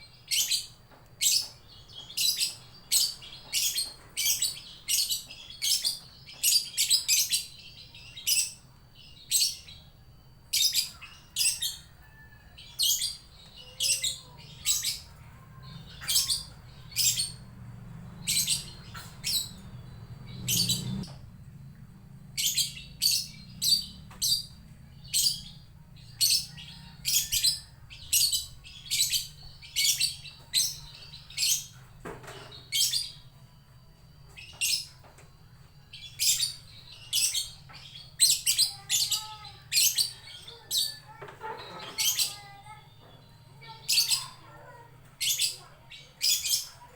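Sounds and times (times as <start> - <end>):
bird shrill chatter calls: 12.7 - 17.4, 36.0 - 42.8.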